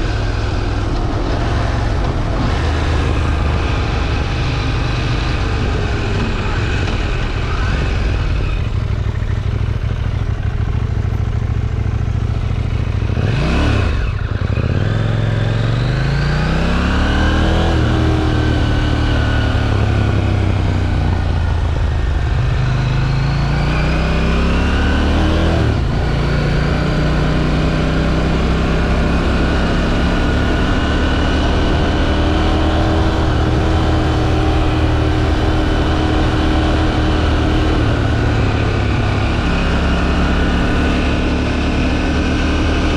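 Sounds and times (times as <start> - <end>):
motorcycle engine under way: 0.0 - 42.9.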